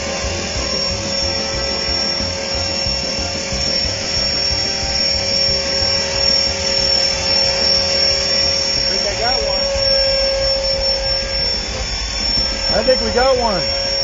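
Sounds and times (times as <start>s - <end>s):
model helicopter motor whining: 0.0s - 14.0s.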